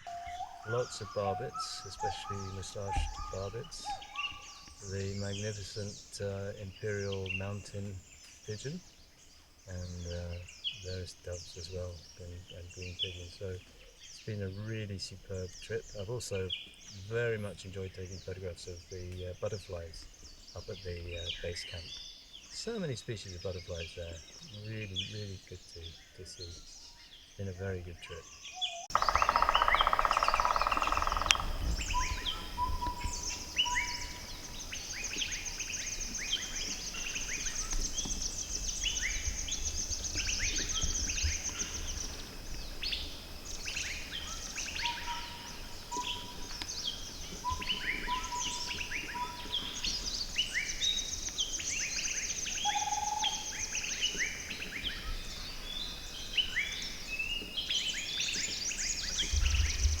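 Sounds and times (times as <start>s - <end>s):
low whistled bird notes: 0.0s - 8.8s, 9.7s - 60.0s
birds chirping and whistling: 0.0s - 60.0s
high fast bird trill: 28.9s - 37.5s.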